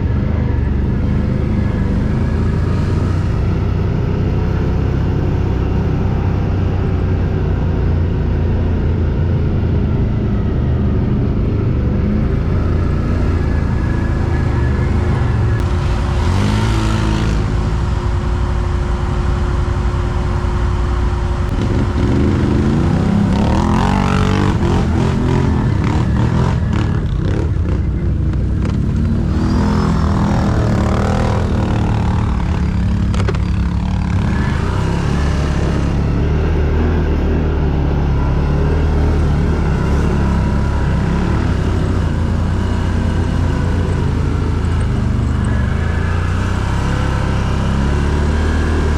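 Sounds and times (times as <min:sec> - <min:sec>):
quad bike engine under load: 0:21.4 - 0:37.0.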